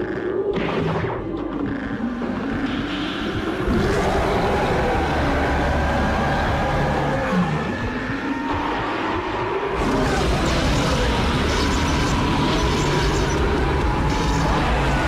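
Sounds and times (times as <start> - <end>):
rumbling energy roar: 3.4 - 9.0, 9.7 - 15.0.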